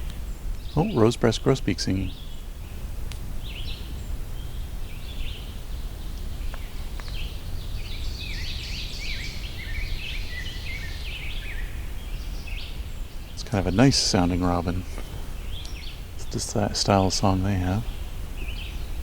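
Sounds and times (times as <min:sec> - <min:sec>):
bird singing warbled song: 0:00.0 - 0:19.0
low background rumble: 0:11.8 - 0:19.0.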